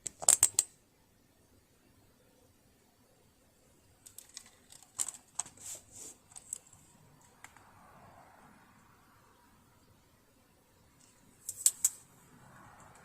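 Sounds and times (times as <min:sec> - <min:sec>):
tools clicking and scraping: 0:00.0 - 0:00.7, 0:04.0 - 0:07.6, 0:11.0 - 0:12.0.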